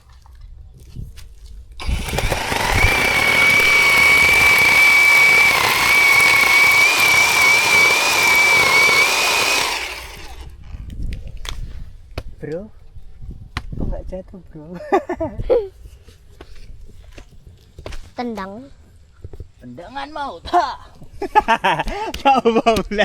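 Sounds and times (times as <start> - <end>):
electric chainsaw cutting wood: 1.8 - 10.5.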